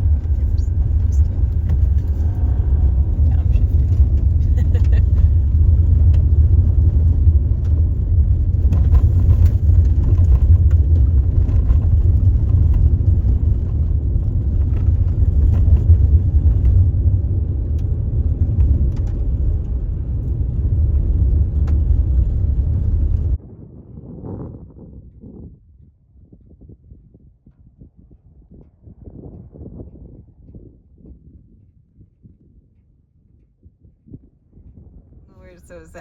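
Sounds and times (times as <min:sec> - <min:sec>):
road rumble: 0:00.0 - 0:25.0, 0:34.1 - 0:36.0.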